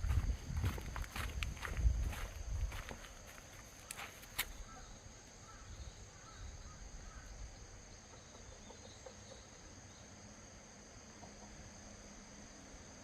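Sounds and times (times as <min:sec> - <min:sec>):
faint low rumble: 0:00.0 - 0:03.4.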